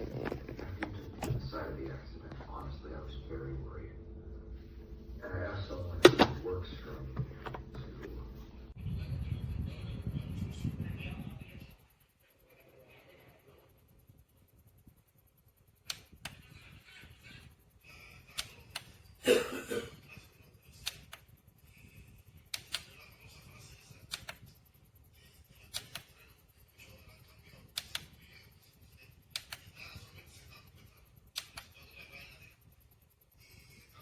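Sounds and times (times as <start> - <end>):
sharp clicks: 15.7 - 16.6, 20.8 - 21.4, 22.4 - 23.0, 24.0 - 24.6, 25.7 - 26.2, 27.6 - 28.2, 29.3 - 29.8, 31.2 - 31.8.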